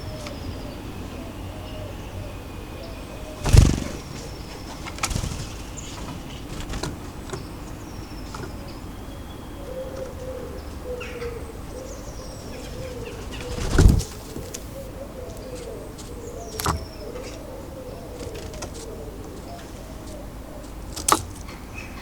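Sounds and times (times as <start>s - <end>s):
small birds chirping: 0.0s - 22.0s
pigeon wings flapping: 3.4s - 7.5s, 13.3s - 14.8s
pigeon cooing: 9.6s - 21.0s.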